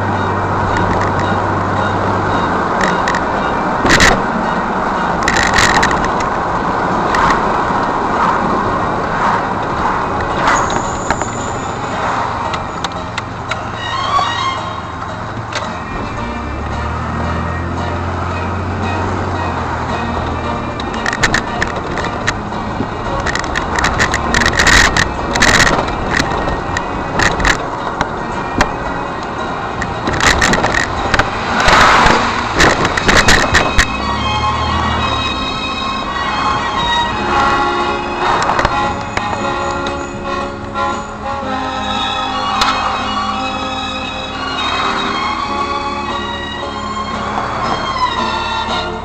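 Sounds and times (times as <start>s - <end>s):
car road and engine noise: 0.0s - 49.0s
sharp clicks and knocks: 0.7s - 1.4s, 2.8s - 4.2s, 5.2s - 6.4s, 7.1s - 7.6s, 20.2s - 22.4s, 23.1s - 28.7s, 29.7s - 34.0s, 38.4s - 40.0s.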